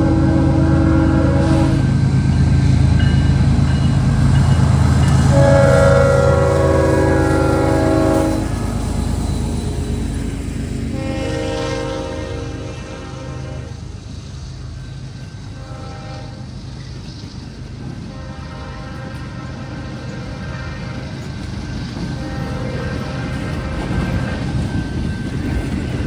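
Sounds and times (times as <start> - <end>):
locomotive air horn blasts: 0.0 - 1.9, 5.3 - 9.0, 9.6 - 14.0, 15.5 - 16.5, 18.0 - 21.2, 22.2 - 24.0.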